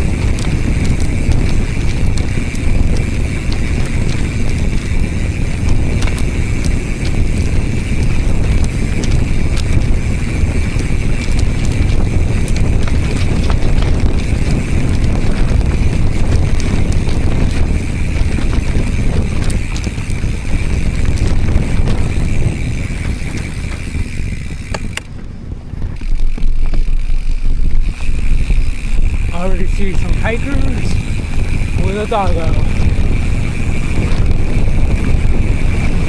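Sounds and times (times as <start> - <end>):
bike clicks and rattles: 0.0 - 36.0
wind rumble on microphone: 0.0 - 36.0.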